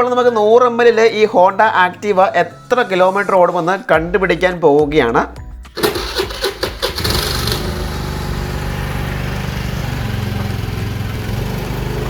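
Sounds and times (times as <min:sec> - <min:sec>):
scooter engine running: 0:05.8 - 0:12.0.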